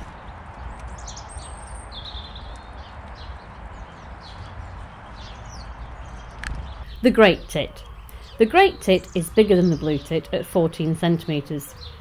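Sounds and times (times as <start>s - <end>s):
bird chirps: 0.0s - 12.0s
outdoor background hiss: 4.9s - 12.0s.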